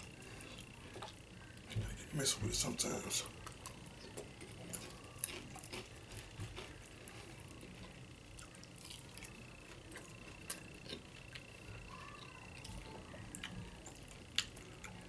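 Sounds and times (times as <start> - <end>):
person chewing crunchy chips: 3.3 - 15.0.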